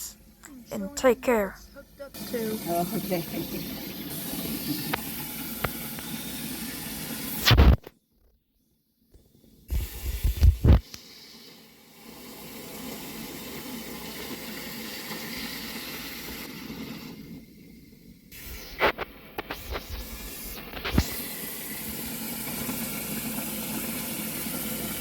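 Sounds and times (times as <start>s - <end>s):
water running into fish tank: 1.0s - 7.8s, 9.5s - 25.0s.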